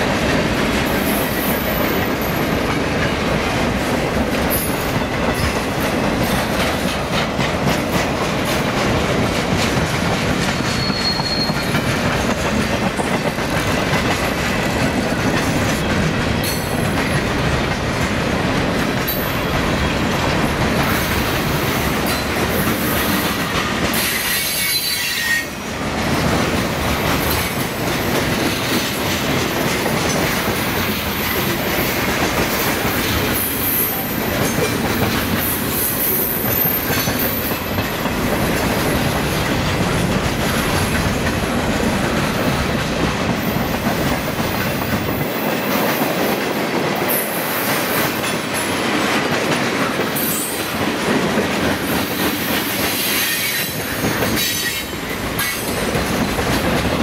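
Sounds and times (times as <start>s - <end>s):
train wheels clattering over rails: 0.0s - 57.0s
high wheel squeal: 10.6s - 11.9s, 24.0s - 25.6s.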